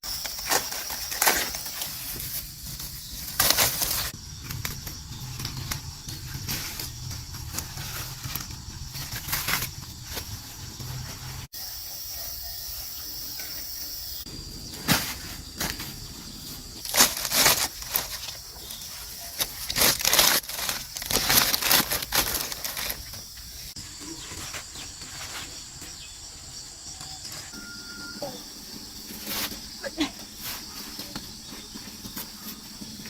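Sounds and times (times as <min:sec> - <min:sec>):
rustling: 0:00.0 - 0:11.5, 0:14.3 - 0:27.6, 0:28.2 - 0:33.0.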